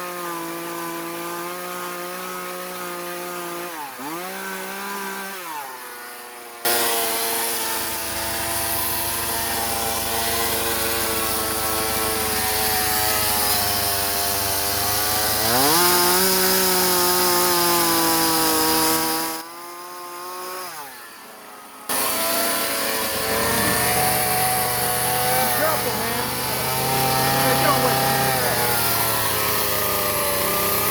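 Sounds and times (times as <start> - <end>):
chainsaw cutting wood: 0.0 - 30.9.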